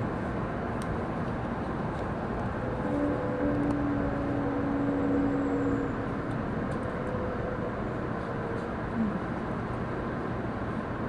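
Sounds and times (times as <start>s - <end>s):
train cabin rumble: 0.0s - 11.0s
train whine: 0.0s - 11.0s.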